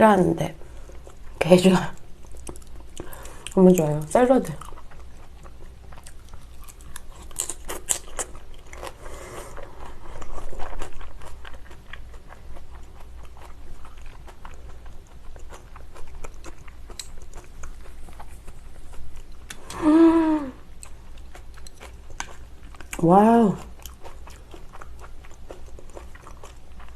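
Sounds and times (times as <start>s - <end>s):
chewing crisp salad: 0.6s - 26.9s
hummed vocal sound: 19.6s - 20.6s.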